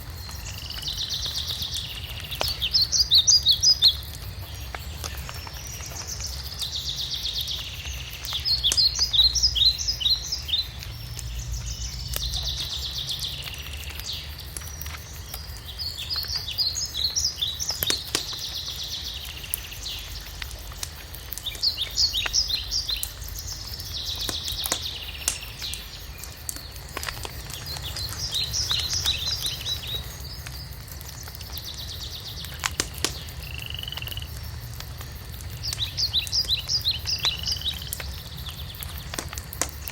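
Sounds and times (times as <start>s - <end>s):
wood fire crackling and popping: 0.0s - 39.9s
songbird trilling and chirping: 27.4s - 30.7s.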